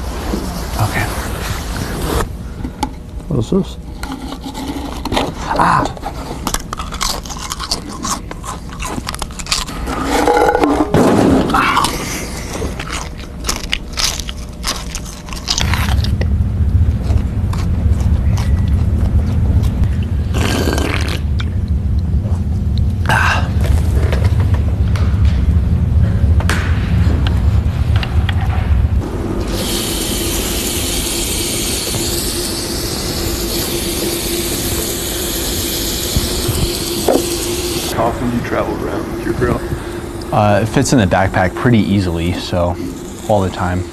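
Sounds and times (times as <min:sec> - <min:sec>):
grill hissing: 0:03.3 - 0:43.9
low hum: 0:06.0 - 0:43.9
crunching crisp snack: 0:06.5 - 0:09.8, 0:11.8 - 0:16.2
steady low rumble: 0:09.8 - 0:43.2.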